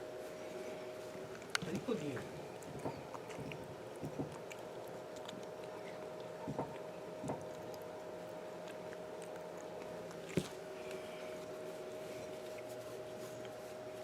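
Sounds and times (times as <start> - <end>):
steady hum: 0.0 - 14.0
cats crunching dry kibble: 0.3 - 14.0.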